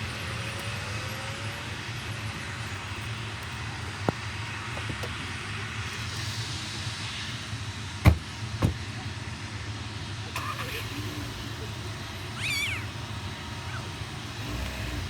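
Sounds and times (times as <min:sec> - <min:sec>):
distant jet engines rumbling: 0:00.0 - 0:15.0
loud knocks: 0:08.0 - 0:08.8.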